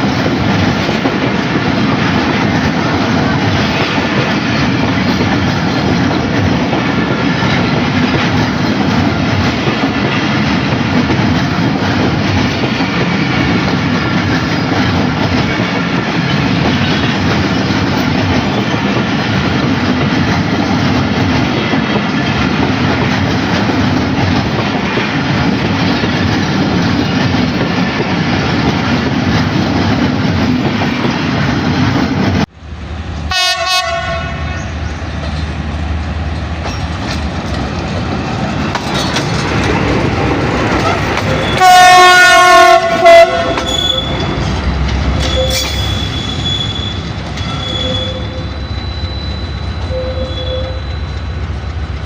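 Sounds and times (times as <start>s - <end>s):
train wheels rumbling on track: 0.0s - 52.0s
locomotive horn blowing: 33.3s - 34.5s, 40.8s - 44.4s, 45.2s - 51.2s.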